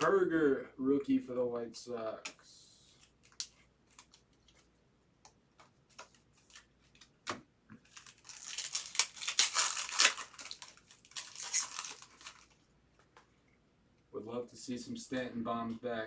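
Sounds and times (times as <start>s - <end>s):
foil wrapper crinkling and tearing: 7.8s - 12.6s.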